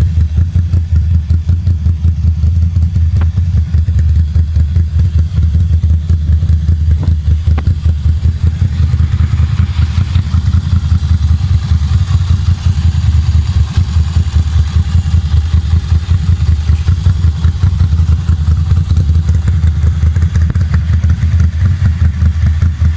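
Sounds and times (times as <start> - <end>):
motorcycle engine idling: 0.0 - 22.9.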